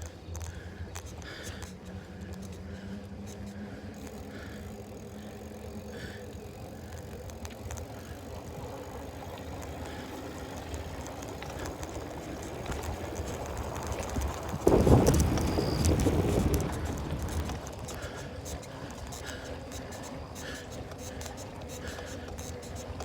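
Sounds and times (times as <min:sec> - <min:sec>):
bicycle tyres rolling on path: 0:00.0 - 0:23.0
bike and phone holder rattling: 0:00.0 - 0:23.0.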